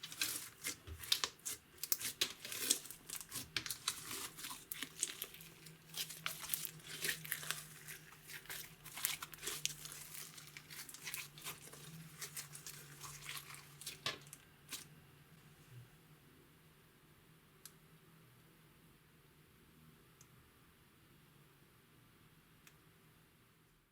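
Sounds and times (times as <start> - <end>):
slime crackling by hand: 0.0 - 14.9
faint steady hum: 0.0 - 23.9.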